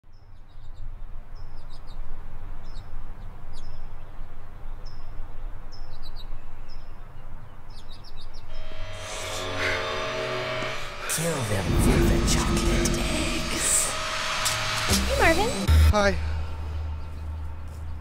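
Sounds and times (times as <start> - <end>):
songbirds chirping: 0.0 - 8.7, 16.3 - 18.0.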